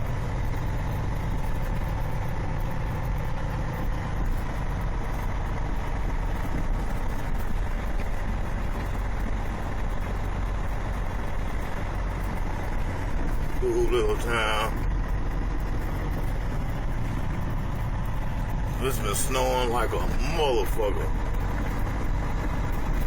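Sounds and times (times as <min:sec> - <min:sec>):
road noise: 0:00.0 - 0:23.0
truck engine drone: 0:00.0 - 0:23.0.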